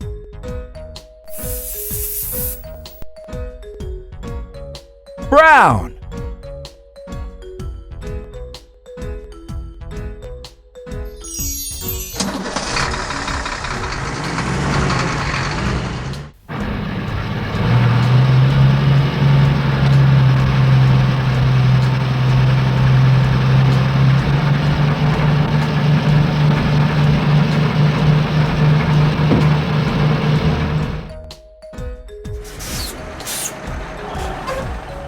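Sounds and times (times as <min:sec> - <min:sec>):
truck engine idling: 0:12.5 - 0:31.2.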